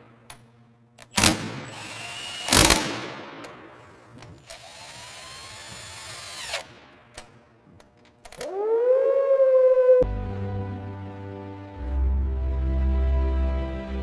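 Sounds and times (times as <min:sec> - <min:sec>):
power tool clicks: 0:00.2 - 0:08.5
power tool whirring: 0:01.0 - 0:02.9, 0:04.1 - 0:07.2
motor whine: 0:04.4 - 0:06.8
music: 0:10.0 - 0:14.0.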